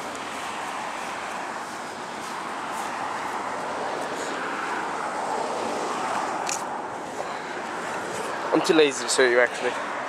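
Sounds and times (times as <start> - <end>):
road traffic hiss: 0.0 - 10.0.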